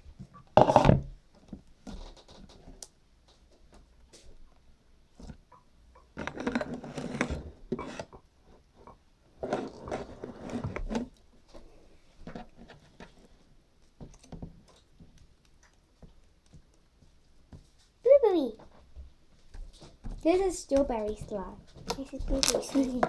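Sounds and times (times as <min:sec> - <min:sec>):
slime clicking and popping: 0:21.9 - 0:23.0.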